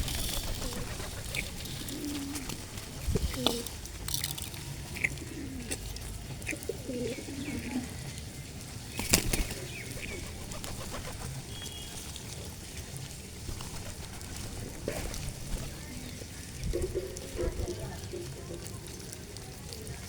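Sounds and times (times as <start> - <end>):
birds chirping: 0.0 - 3.9, 4.9 - 12.5
pigeons cooing: 0.0 - 12.4, 13.4 - 20.0.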